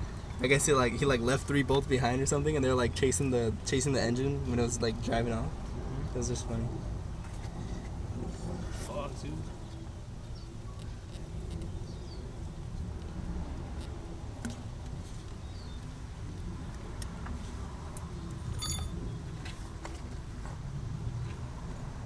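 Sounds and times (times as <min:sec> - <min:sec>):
ringing metal clink: 0:18.5 - 0:19.0.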